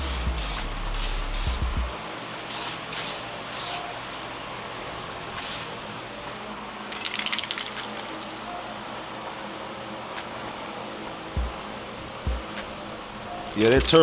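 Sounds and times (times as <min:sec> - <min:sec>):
rapid clicking rattle: 0:00.0 - 0:14.0
spray can hissing: 0:00.0 - 0:14.0.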